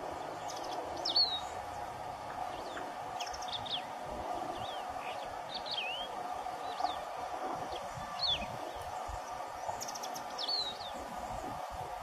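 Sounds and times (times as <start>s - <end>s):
steady background hum: 0.0s - 12.0s
finch singing chirps and whistles: 0.4s - 1.6s, 2.5s - 3.9s, 4.6s - 7.0s, 7.7s - 11.4s.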